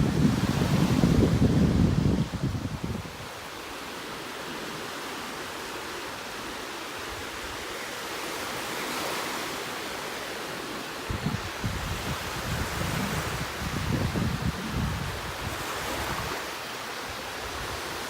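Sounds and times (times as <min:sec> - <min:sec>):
wind buffeting microphone: 0:00.0 - 0:03.3, 0:11.1 - 0:16.4
waves breaking on beach: 0:00.0 - 0:18.0.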